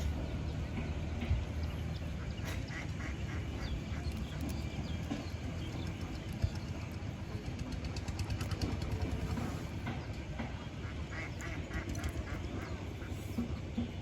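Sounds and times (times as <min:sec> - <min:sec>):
steady low rumble: 0:00.0 - 0:14.0
ducks quacking: 0:01.4 - 0:04.8, 0:10.5 - 0:13.6.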